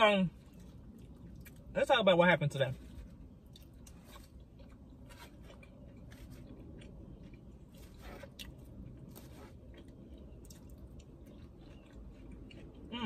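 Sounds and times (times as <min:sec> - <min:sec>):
low background hum: 0:00.0 - 0:13.0
person chewing: 0:00.3 - 0:01.7, 0:02.8 - 0:13.0.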